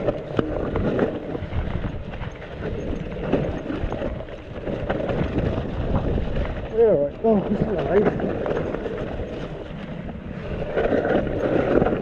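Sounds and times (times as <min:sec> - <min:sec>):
bike knocks and rattles: 0:00.0 - 0:09.7
mountain bike riding noise: 0:00.0 - 0:12.0.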